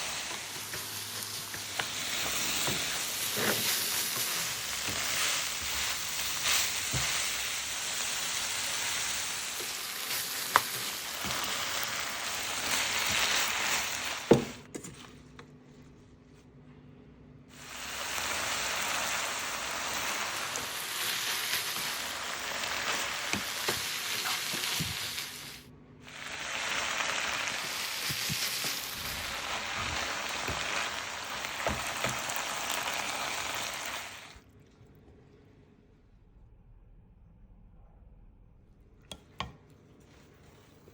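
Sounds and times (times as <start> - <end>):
meat sizzling in a pan: 0.0 - 14.6, 17.5 - 34.4
spatula scraping and knocking: 0.6 - 5.7.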